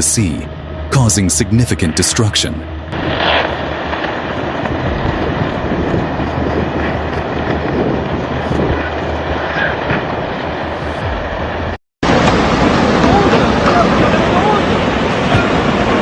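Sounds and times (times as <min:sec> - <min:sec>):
landslide debris rumbling: 0:03.0 - 0:10.8, 0:12.1 - 0:16.0.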